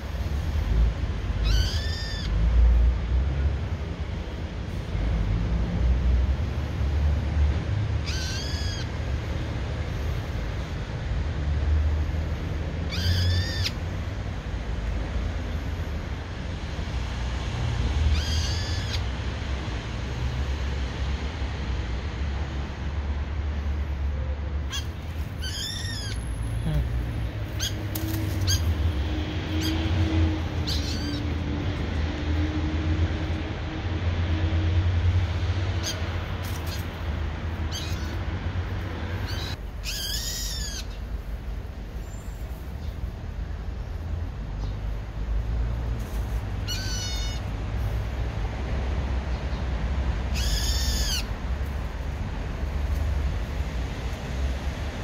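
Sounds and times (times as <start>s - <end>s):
bird shrill calls: 1.4s - 2.4s, 8.1s - 8.9s, 12.9s - 13.8s, 18.1s - 19.0s, 24.7s - 26.3s, 27.6s - 27.8s, 30.6s - 31.3s, 39.2s - 41.0s, 46.6s - 47.4s, 50.3s - 51.3s.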